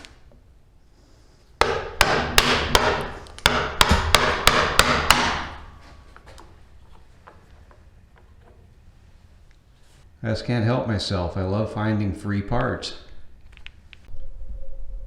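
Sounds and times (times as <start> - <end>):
hammer blows ringing: 1.6 - 5.8.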